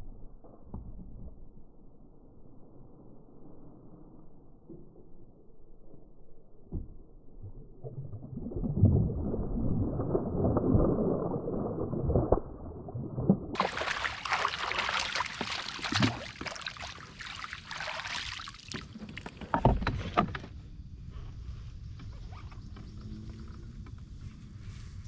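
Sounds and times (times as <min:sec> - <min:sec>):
water sloshing: 0:13.5 - 0:20.2.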